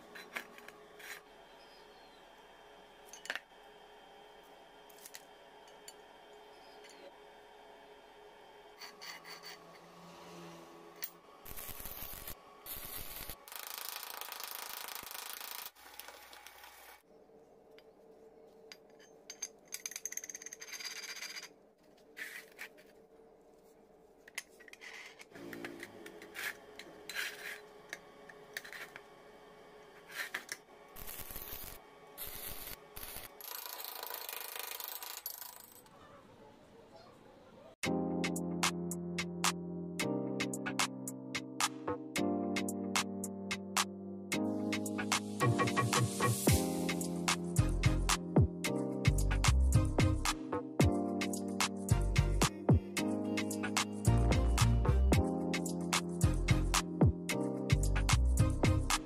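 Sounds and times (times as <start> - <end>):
metal parts clinking and scraping: 8.8 - 9.8, 18.7 - 22.9, 32.2 - 35.9.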